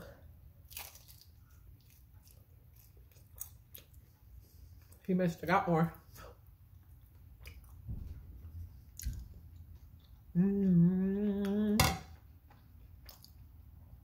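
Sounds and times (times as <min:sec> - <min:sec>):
person humming mmm: 0:10.3 - 0:11.9.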